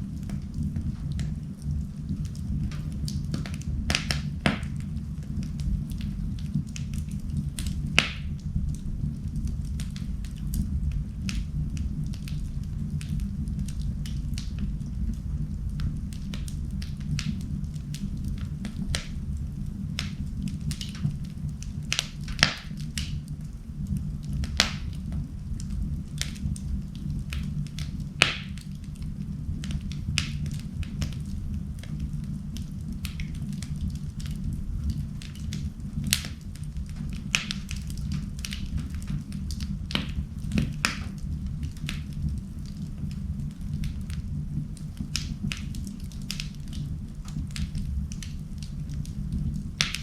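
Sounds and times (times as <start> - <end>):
sharp fire pops: 0.0 - 50.0
wood fire crackling: 0.0 - 50.0.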